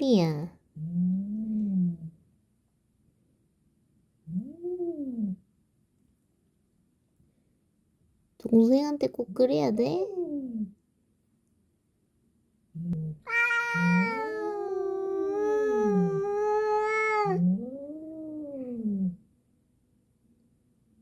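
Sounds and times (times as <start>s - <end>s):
cat growling: 12.8s - 19.2s
cat yowling: 13.2s - 18.7s.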